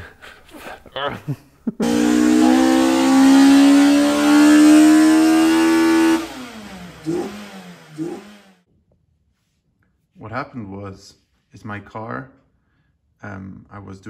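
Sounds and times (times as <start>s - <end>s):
car engine accelerating: 1.8s - 8.6s.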